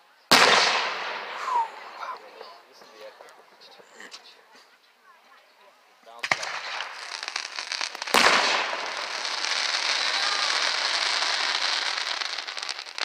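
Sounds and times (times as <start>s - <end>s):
firework bang: 0.3s - 3.3s, 6.2s - 13.0s
firework crackling: 0.3s - 4.1s, 6.2s - 13.0s.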